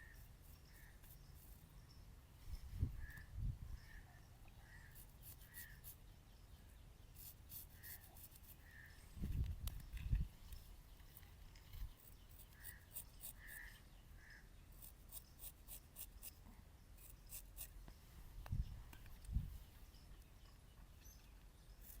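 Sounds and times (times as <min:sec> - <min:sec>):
razor scraping stubble: 0:00.0 - 0:01.7, 0:04.8 - 0:06.0, 0:07.1 - 0:13.8, 0:14.8 - 0:16.4, 0:17.0 - 0:17.8, 0:21.7 - 0:22.0.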